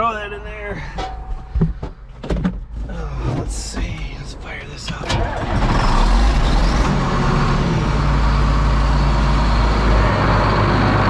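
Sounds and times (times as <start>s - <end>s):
tractor engine starting and idling: 3.3s - 11.0s.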